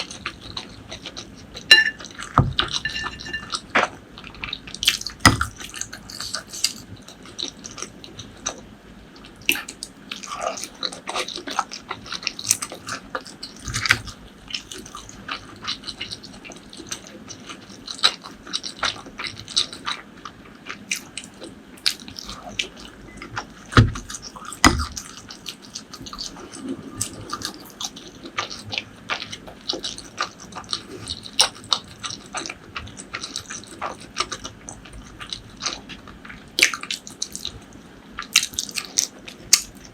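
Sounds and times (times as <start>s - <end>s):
chewing and mouth smacks: 9.2s - 39.9s
dull thumps: 23.8s - 24.1s.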